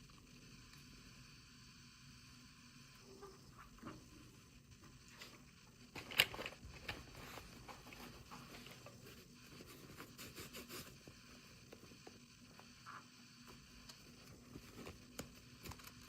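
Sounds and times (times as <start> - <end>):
toy packaging being handled: 5.2 - 9.2.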